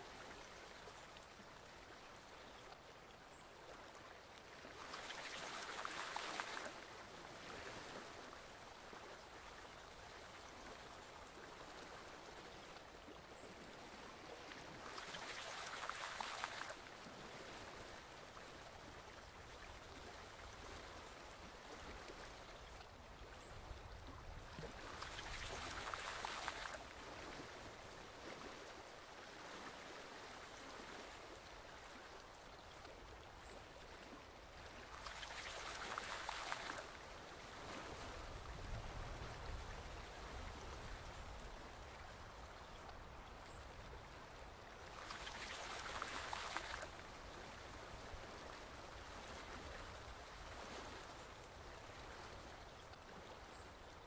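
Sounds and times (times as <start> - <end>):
stream water rushing: 3.9 - 9.0, 14.5 - 19.0, 24.8 - 33.5, 34.2 - 53.6.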